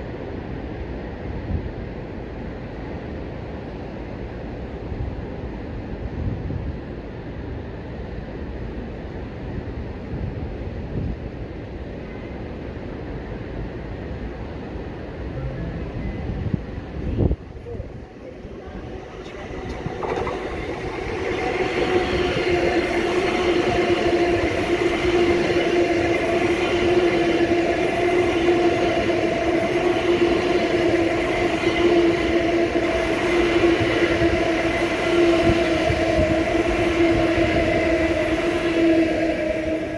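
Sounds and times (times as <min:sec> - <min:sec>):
train wheels rumbling on rail: 0:00.0 - 0:39.9
two-note motor hum: 0:15.3 - 0:16.5.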